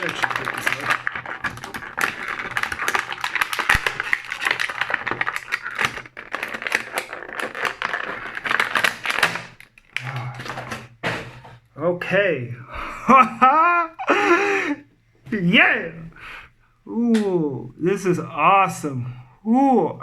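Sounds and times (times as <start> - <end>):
plastic packaging crackling: 0.0 - 11.4.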